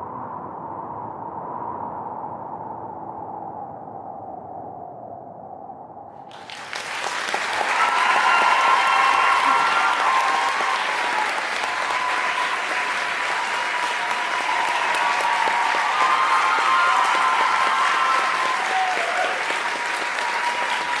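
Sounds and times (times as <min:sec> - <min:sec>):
audience applauding: 0:06.3 - 0:21.0
voices rising over clapping: 0:06.3 - 0:21.0.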